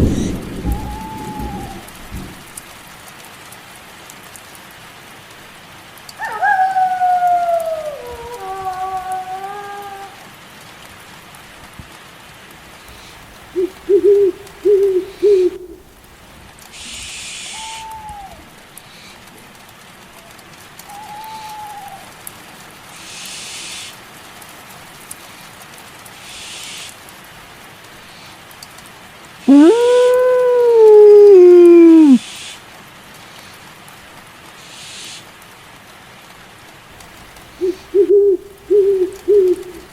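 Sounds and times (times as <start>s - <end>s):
higher single bird calls: 0.0s - 2.0s, 12.9s - 16.0s, 16.8s - 18.4s, 20.9s - 22.1s, 29.5s - 30.3s, 37.3s - 39.9s
owl hooting: 0.0s - 2.0s, 6.2s - 10.1s, 12.9s - 16.0s, 16.7s - 18.4s, 20.9s - 22.1s, 29.5s - 32.6s, 37.2s - 39.9s
rain hiss: 0.0s - 39.9s.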